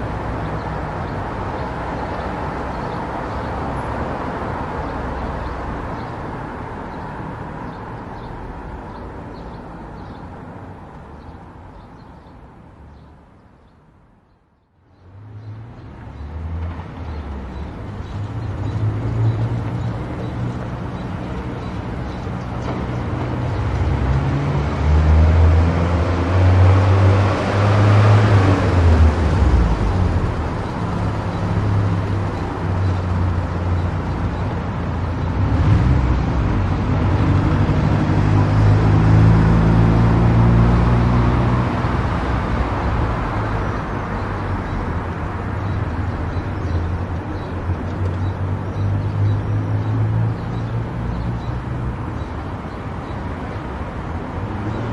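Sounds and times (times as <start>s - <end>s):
tyre and road noise: 0.0s - 54.9s.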